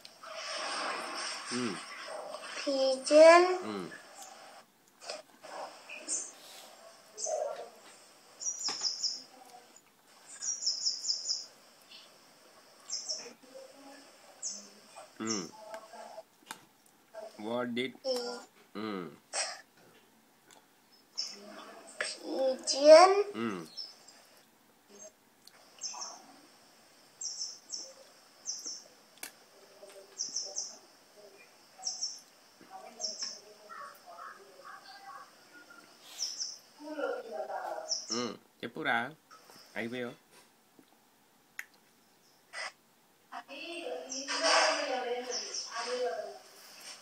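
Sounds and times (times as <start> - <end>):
small bird chirping: 1.5 - 16.2, 20.8 - 38.4, 43.7 - 46.4.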